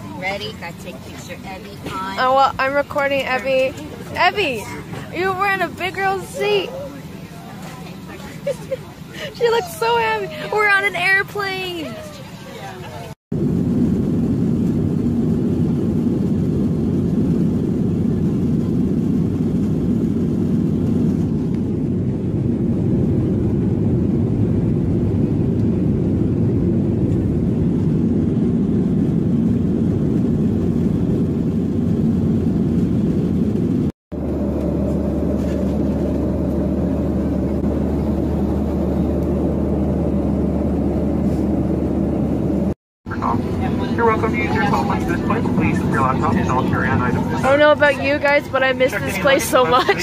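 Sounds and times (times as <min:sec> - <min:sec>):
airliner engine and airflow noise: 0:00.0 - 0:50.0
cabin hum with low drone: 0:13.4 - 0:50.0.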